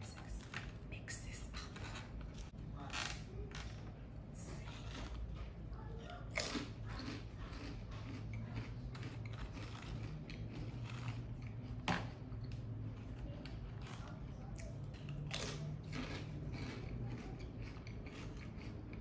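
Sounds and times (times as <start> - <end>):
chewing crunchy salad: 4.4 - 19.0.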